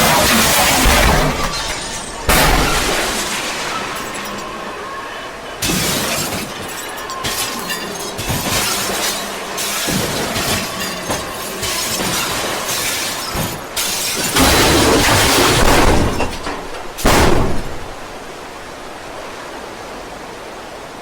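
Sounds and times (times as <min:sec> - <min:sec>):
loud crashing destruction noise: 0:00.0 - 0:19.2.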